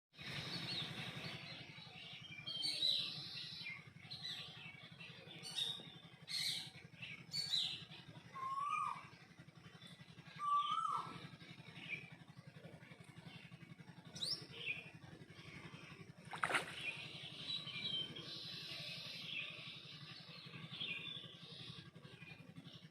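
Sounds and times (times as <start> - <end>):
birds chirping: 0.2 - 22.9
steady low hum: 0.2 - 22.9
bird calls rising and falling: 7.3 - 9.1, 10.4 - 11.3.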